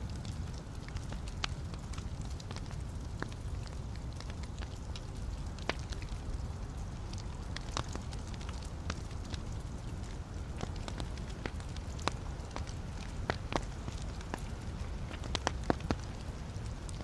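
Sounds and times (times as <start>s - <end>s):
fire crackling and popping: 0.0s - 17.0s
fire rumble and hiss: 0.0s - 17.0s.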